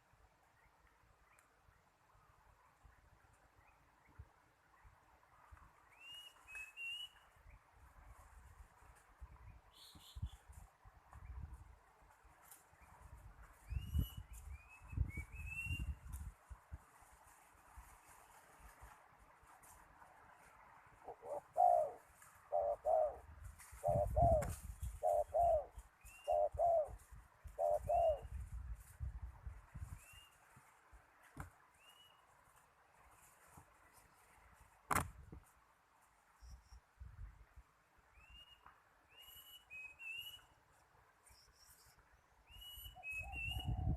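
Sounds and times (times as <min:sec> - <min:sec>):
faint whistled bird calls: 0:05.8 - 0:07.6, 0:09.5 - 0:10.5, 0:13.6 - 0:16.1, 0:23.8 - 0:26.9, 0:29.9 - 0:30.4, 0:31.8 - 0:32.3, 0:38.1 - 0:40.6, 0:41.2 - 0:43.9
dove cooing: 0:21.0 - 0:28.3, 0:43.1 - 0:43.9.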